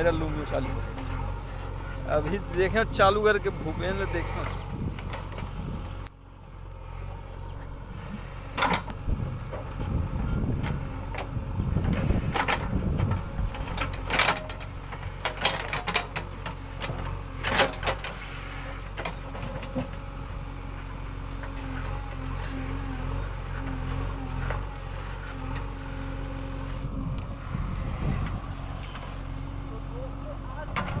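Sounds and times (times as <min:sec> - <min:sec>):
diesel engine running: 0:00.0 - 0:31.0
machine knocks and clanks: 0:10.6 - 0:18.1.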